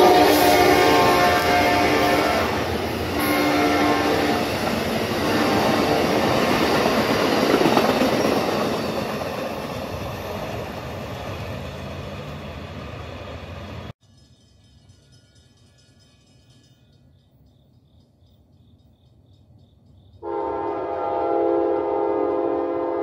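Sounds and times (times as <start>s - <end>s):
train horn: 0.0s - 6.6s, 20.2s - 23.0s
train rumbling and rattling past: 0.0s - 23.0s.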